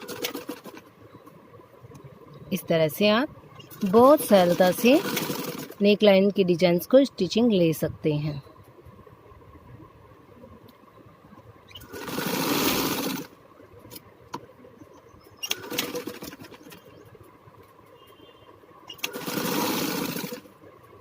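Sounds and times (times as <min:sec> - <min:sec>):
sewing machine stitching: 0:00.0 - 0:00.9, 0:03.7 - 0:05.9, 0:11.8 - 0:13.3, 0:15.4 - 0:16.8, 0:18.9 - 0:20.5.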